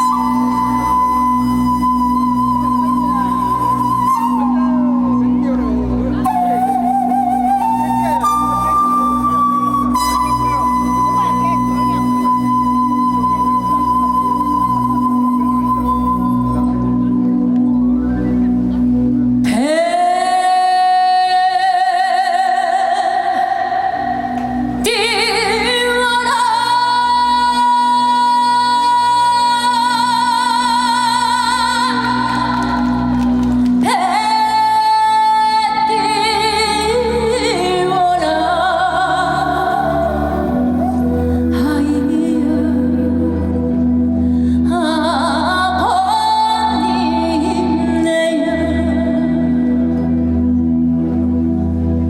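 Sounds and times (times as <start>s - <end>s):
musical backing: 0.0s - 52.0s
woman singing a long high note: 19.5s - 33.1s, 33.8s - 49.8s.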